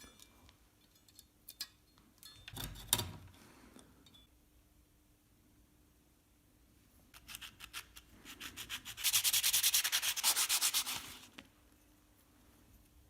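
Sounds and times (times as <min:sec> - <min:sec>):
sandpaper rubbing on wood: 0:08.3 - 0:11.3.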